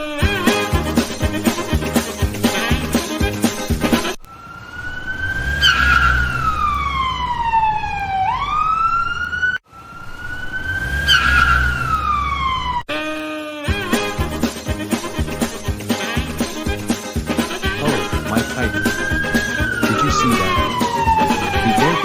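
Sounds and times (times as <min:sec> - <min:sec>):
police siren wailing: 0:04.2 - 0:12.9, 0:16.6 - 0:22.0.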